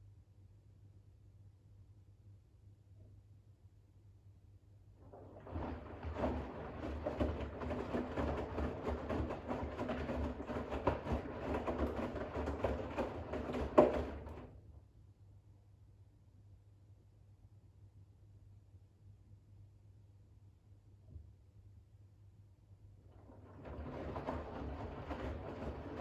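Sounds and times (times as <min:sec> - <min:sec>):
washing machine drum tumbling: 0:05.1 - 0:14.5, 0:23.2 - 0:26.0.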